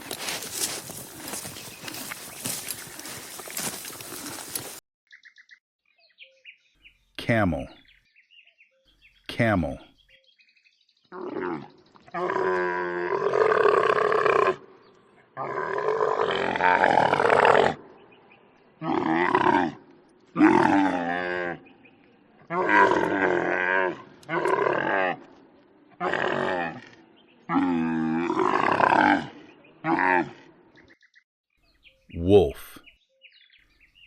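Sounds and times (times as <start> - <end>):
camel calling: 0.0 - 4.8.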